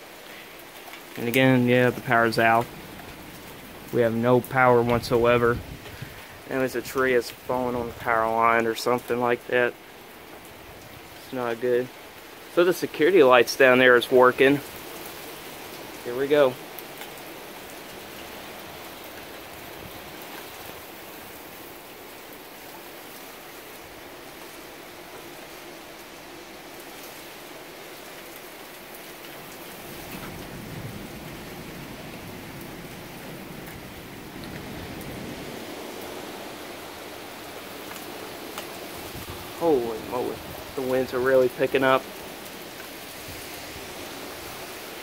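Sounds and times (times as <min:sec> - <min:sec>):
steady rain: 0:00.0 - 0:45.0
wind gusts rumbling: 0:01.1 - 0:09.6, 0:29.0 - 0:45.0.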